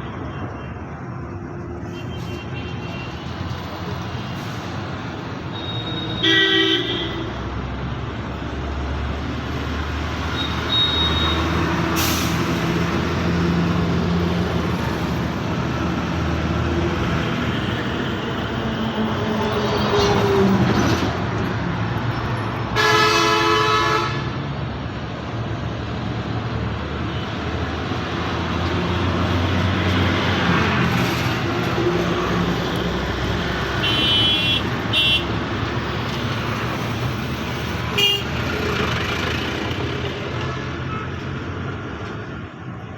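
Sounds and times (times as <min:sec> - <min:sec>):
heavy traffic engine rumble: 0:00.0 - 0:42.9
vehicle horn honking: 0:05.6 - 0:07.3, 0:22.8 - 0:24.3, 0:33.8 - 0:35.3, 0:38.0 - 0:38.3.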